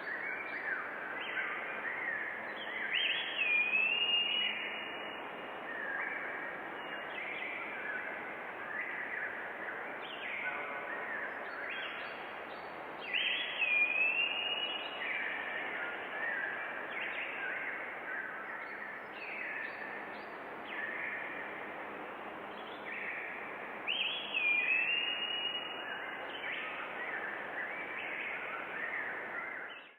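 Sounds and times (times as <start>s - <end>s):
forest birds singing: 0.0s - 29.9s
steady background hiss: 0.0s - 29.9s.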